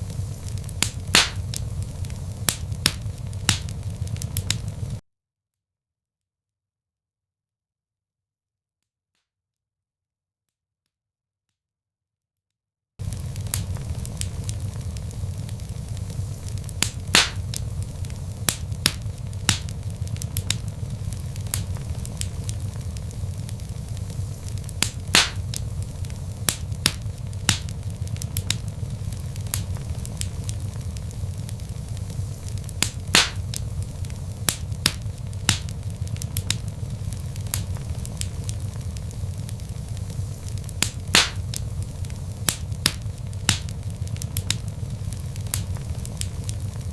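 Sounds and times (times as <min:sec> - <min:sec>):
log fire crackling: 0:00.0 - 0:05.0, 0:13.0 - 0:46.9.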